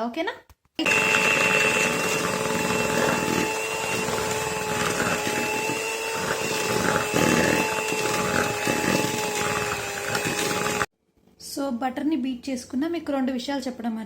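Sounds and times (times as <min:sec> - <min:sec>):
electric beater motor whine: 0:00.8 - 0:10.9.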